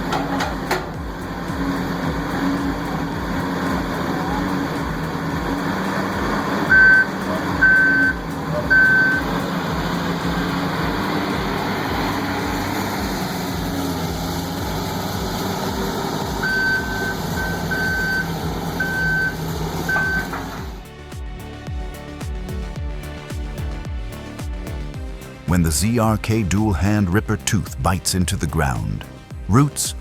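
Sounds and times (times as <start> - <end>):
heavy diesel engine running: 0.0 - 20.8
reversing alarm beeps: 6.7 - 9.3, 16.4 - 20.8.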